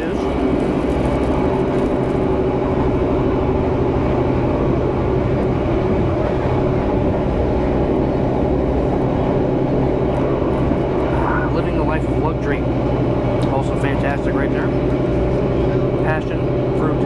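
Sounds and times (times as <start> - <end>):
passenger train running rumble: 0.0 - 17.0.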